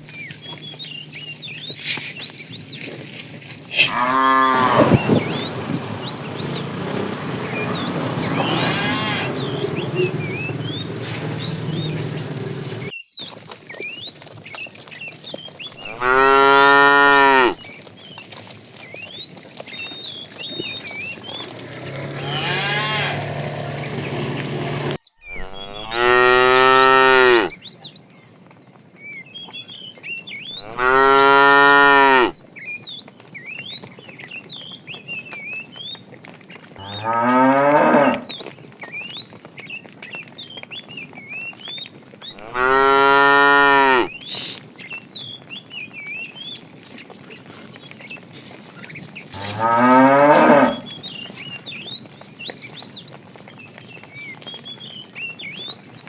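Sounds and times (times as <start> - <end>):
cattle mooing: 3.7 - 12.9, 15.8 - 17.6, 21.1 - 27.6, 30.6 - 32.4, 36.8 - 38.3, 42.4 - 44.6, 49.3 - 51.0.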